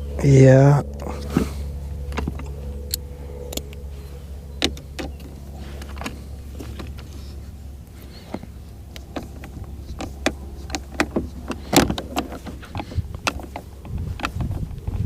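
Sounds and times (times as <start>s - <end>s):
steady low hum: 0.0s - 15.0s
hand tools clicking and knocking: 8.1s - 14.8s.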